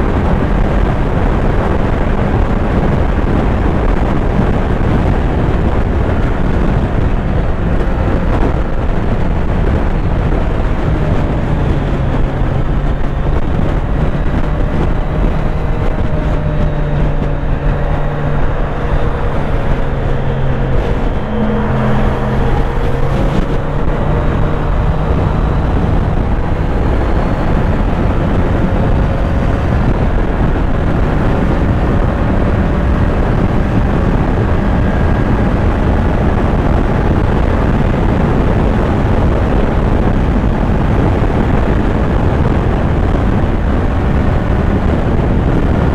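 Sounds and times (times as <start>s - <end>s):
heavy wind rush: 0.0s - 45.9s
motorcycle engine running: 0.0s - 45.9s.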